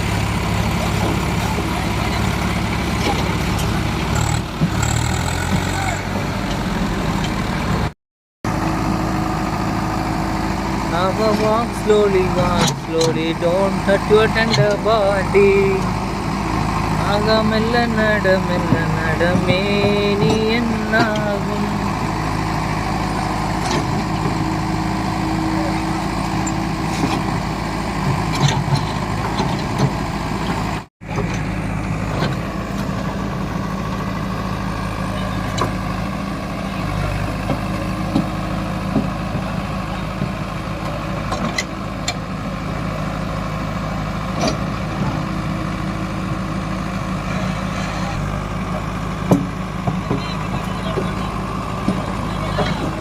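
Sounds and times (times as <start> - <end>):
heavy diesel engine running: 0.0 - 53.0
metal clanks and knocks: 28.0 - 31.5.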